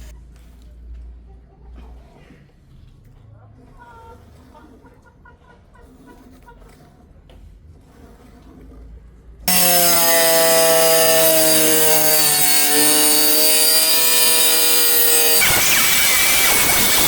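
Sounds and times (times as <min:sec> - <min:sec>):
power tool cutting: 0:09.5 - 0:17.0.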